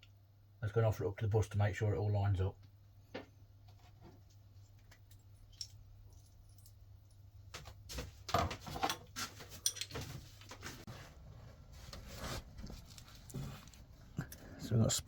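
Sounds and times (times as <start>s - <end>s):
small metal parts clinking: 5.1s - 7.2s.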